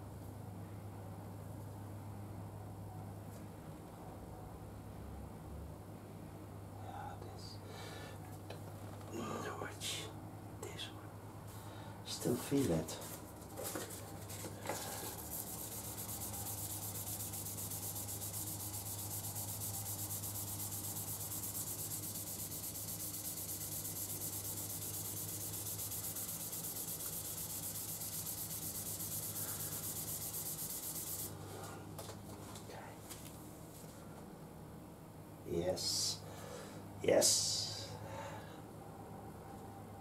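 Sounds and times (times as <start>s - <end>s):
sanding metal tube: 15.0s - 31.3s.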